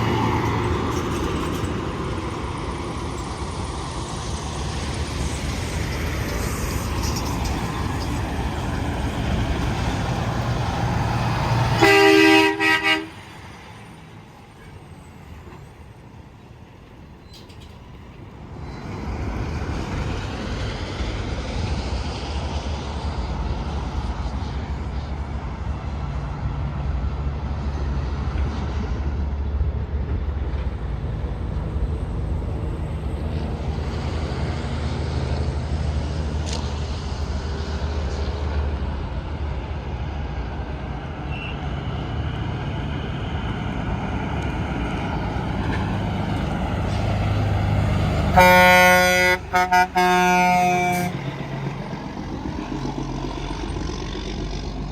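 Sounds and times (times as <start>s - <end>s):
trucks passing: 0.0s - 54.9s
truck air horn blast: 11.7s - 13.3s, 48.3s - 51.3s.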